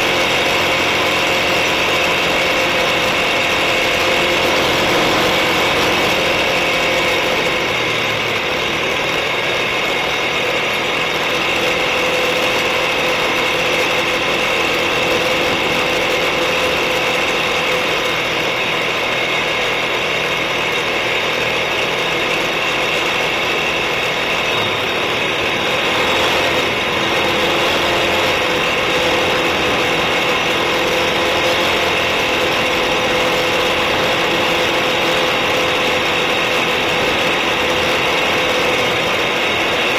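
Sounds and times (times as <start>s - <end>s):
atv engine whining: 0.0s - 39.9s.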